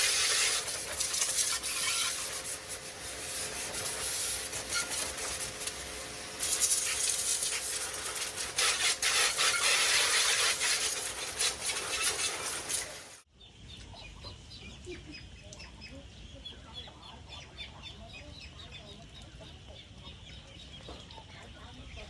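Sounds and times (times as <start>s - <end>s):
loud spraying hiss: 0.0s - 11.6s
chickens clucking: 13.7s - 22.0s.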